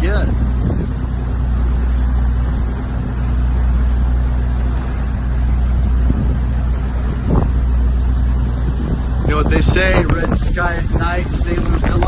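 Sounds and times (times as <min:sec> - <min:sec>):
boat engine droning: 0:00.0 - 0:12.0
wind and water rushing: 0:00.0 - 0:12.0.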